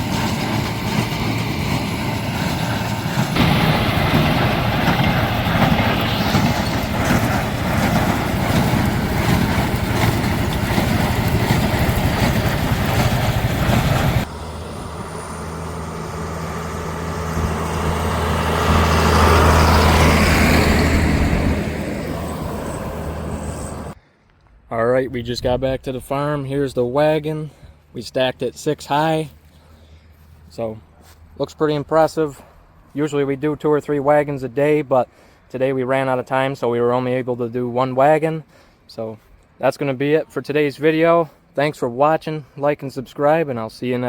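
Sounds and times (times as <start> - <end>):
baler mechanical clatter: 0.0 - 24.0
rising engine whine: 0.0 - 24.0
tractor engine running: 0.0 - 24.0.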